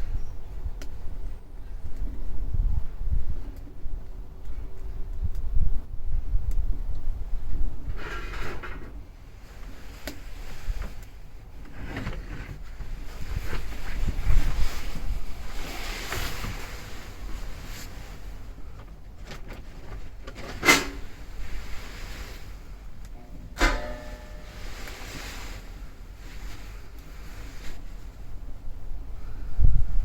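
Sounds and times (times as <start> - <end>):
wind buffeting microphone: 0.0 - 18.8, 27.8 - 30.0.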